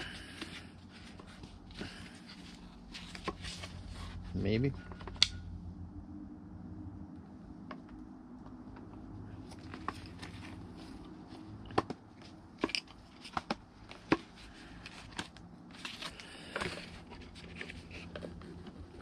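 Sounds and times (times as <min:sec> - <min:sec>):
steady low hum: 0:00.0 - 0:19.0
plastic scraping: 0:09.4 - 0:19.0
plastic parts clicking and knocking: 0:11.6 - 0:19.0.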